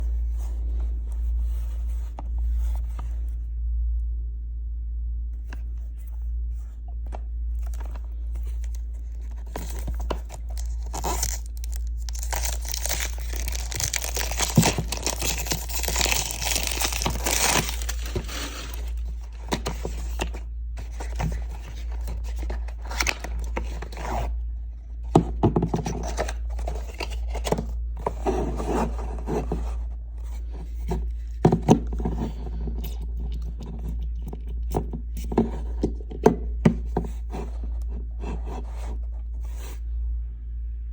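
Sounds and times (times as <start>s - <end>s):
steady low hum: 0.0s - 40.9s
plastic wrap crinkling: 7.6s - 24.0s
cardboard box scraping: 7.6s - 24.3s, 25.6s - 32.4s.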